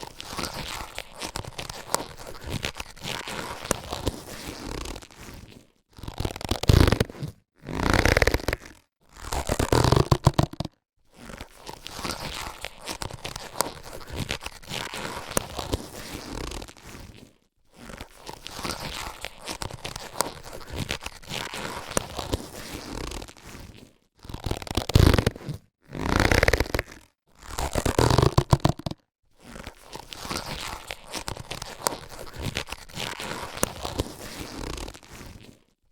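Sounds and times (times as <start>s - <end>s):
latex gloves rustling: 0.0s - 8.7s, 27.7s - 35.8s.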